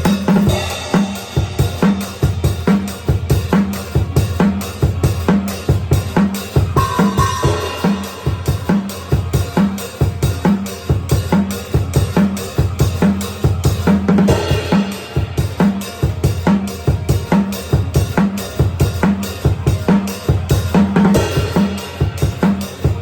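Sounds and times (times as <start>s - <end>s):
cymbal crashes: 0.0s - 23.0s
drum kit metal beat: 0.0s - 23.0s.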